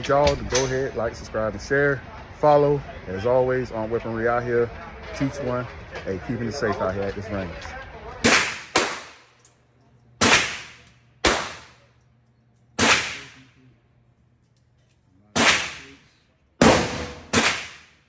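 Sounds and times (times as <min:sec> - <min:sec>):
gunshots with echo: 0:08.2 - 0:09.2, 0:10.2 - 0:11.8, 0:12.8 - 0:13.5, 0:15.4 - 0:16.0, 0:16.6 - 0:18.0.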